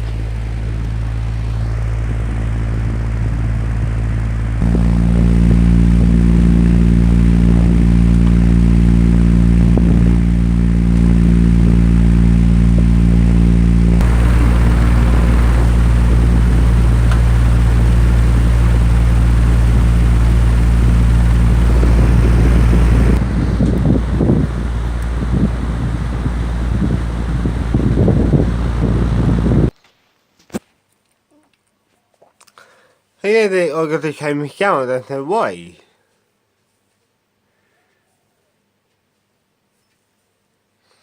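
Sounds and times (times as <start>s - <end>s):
electric fans humming: 0.0s - 7.1s, 13.9s - 23.4s.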